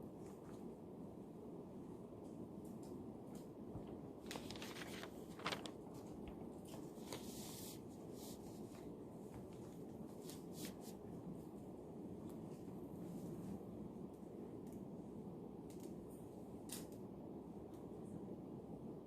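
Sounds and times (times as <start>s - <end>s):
low room hum: 0.0s - 19.0s
paper rustling: 3.3s - 11.0s.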